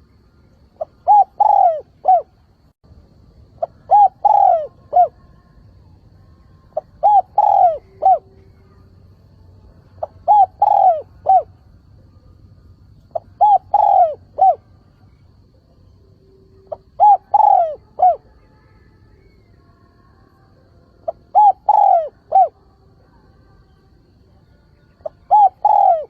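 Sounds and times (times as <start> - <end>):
dove cooing: 0.8 - 2.4, 3.6 - 5.3, 6.7 - 8.9, 9.9 - 11.6, 13.0 - 15.4, 16.5 - 18.4, 21.0 - 22.6, 24.8 - 26.0.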